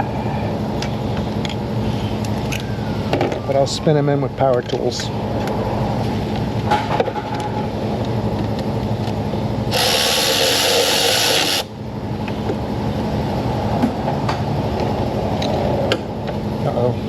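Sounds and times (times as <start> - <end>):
power tool hissing burst: 9.7 - 11.7.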